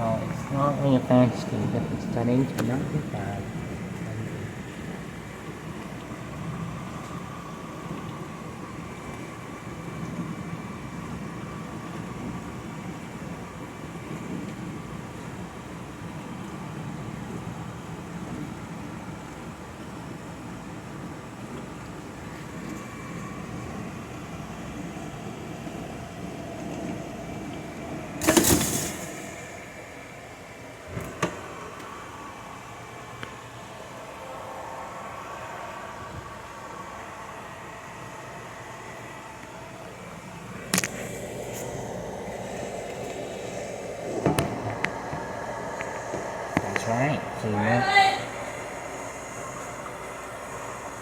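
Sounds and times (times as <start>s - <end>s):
faint whine: 0.0s - 51.0s
household appliance humming: 20.6s - 51.0s
loud clatter: 28.2s - 29.4s.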